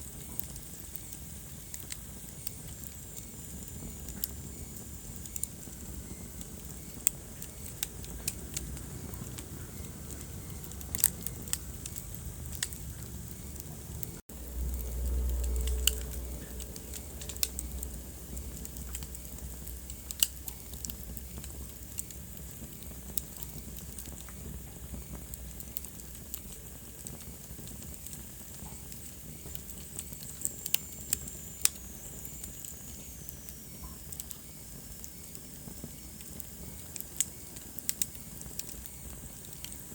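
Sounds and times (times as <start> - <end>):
wood fire crackling: 0.0 - 39.9
low rumble: 8.0 - 22.4.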